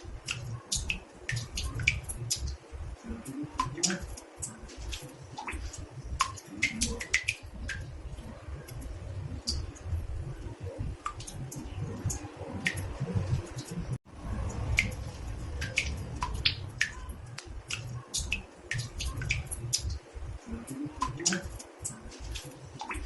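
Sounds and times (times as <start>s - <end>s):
water drops plinking into bathtub: 0.2s - 13.8s, 14.4s - 23.0s
low steady rumble: 5.7s - 21.2s.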